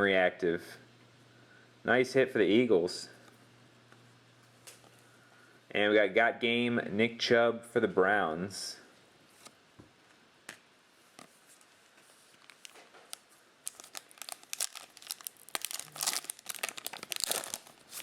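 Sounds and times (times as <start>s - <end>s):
wrapper tearing and crinkling: 12.4s - 18.0s.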